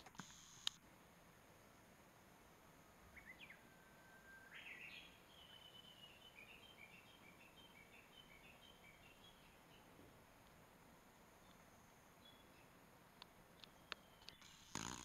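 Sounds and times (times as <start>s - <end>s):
songbird singing faintly: 0.0s - 15.0s.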